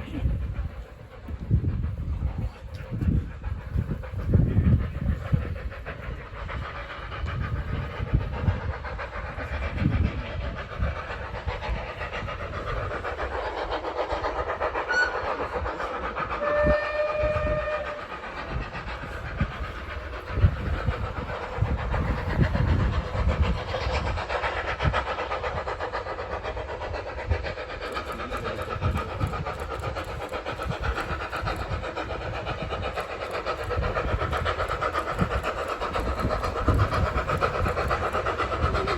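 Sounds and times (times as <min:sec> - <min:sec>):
train wheels clattering over rails: 0:00.0 - 0:38.9
train whistle: 0:14.9 - 0:15.3, 0:16.4 - 0:18.1.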